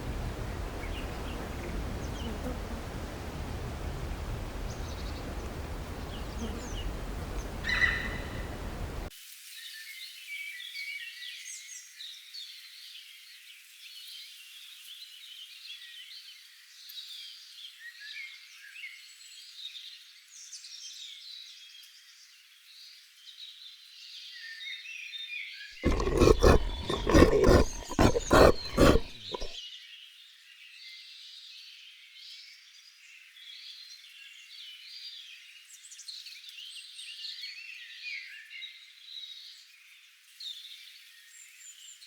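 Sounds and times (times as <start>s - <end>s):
birds chirping: 4.6s - 9.1s, 25.8s - 29.5s.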